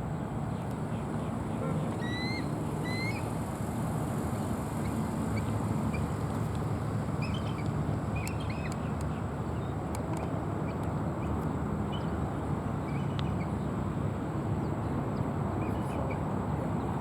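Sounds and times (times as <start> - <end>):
eagle chirping: 2.0 - 3.3.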